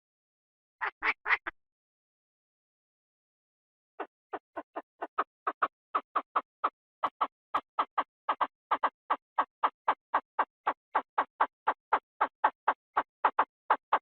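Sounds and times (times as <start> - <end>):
bird calling in clipped notes: 4.0 - 14.0.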